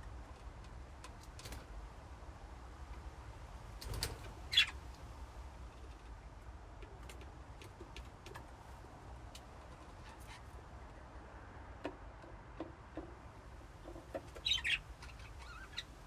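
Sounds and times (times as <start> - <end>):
budgie chirping: 4.5 - 4.8, 14.3 - 16.0.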